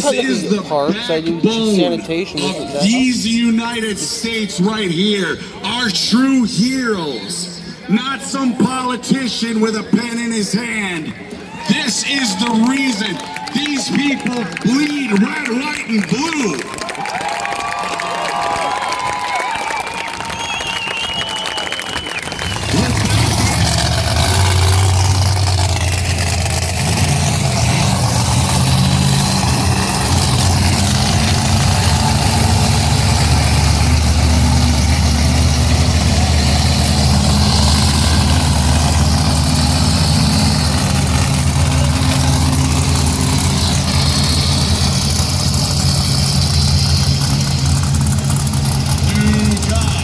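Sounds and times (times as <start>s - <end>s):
truck engine idling: 19.4s - 50.0s.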